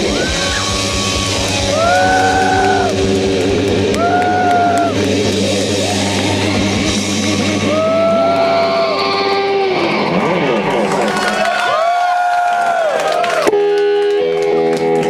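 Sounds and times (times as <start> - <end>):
low drone: 0.0 - 11.1
distorted electric guitar: 0.0 - 11.6, 13.5 - 15.0.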